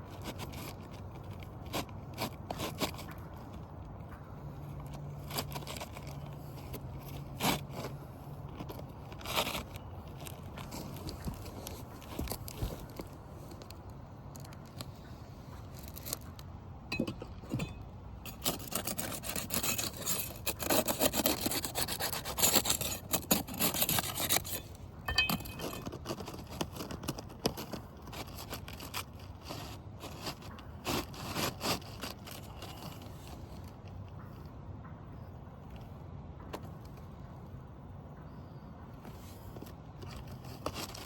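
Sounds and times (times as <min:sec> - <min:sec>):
roof shingle scraping: 0:00.0 - 0:13.8, 0:17.0 - 0:33.8, 0:39.1 - 0:41.0.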